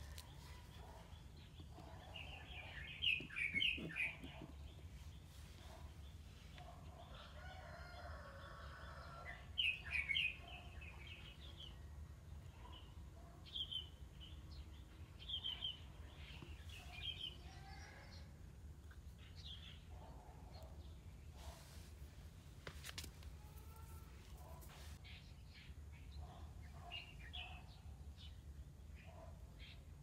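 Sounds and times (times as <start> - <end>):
birds chirping: 0.0 - 6.8.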